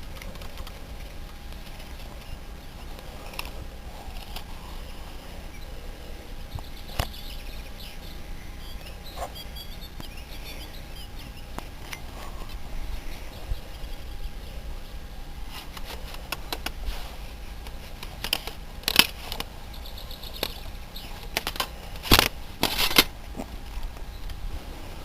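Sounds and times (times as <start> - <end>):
handling clicks and rustles: 0.0 - 5.6, 15.3 - 24.4.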